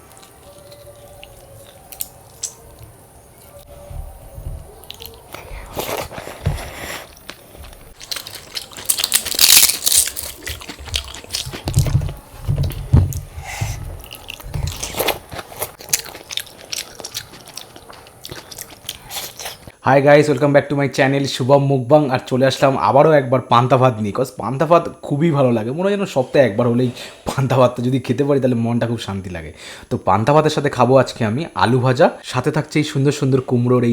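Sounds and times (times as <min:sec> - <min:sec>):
crunching bites of fried food: 0:04.8 - 0:12.8, 0:14.1 - 0:19.7.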